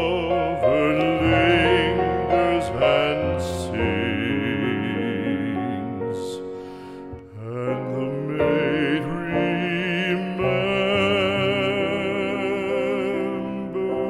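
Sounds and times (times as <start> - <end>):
classical singing voice with vibrato: 0.0 - 14.0
instrumental accompaniment: 0.0 - 14.0.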